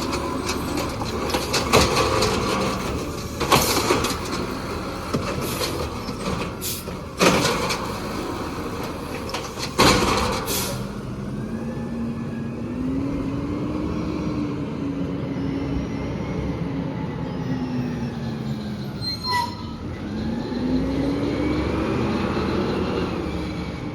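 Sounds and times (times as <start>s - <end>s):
truck engine revving: 0.0s - 19.0s, 19.6s - 23.9s
air brake hisses: 10.5s - 10.8s.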